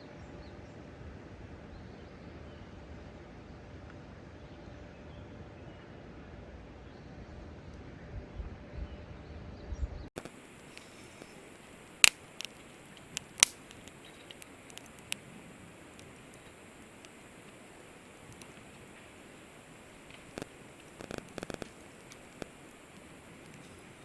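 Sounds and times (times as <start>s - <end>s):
faint steady hiss: 10.2s - 24.0s
firewood crackling and popping: 10.2s - 24.0s.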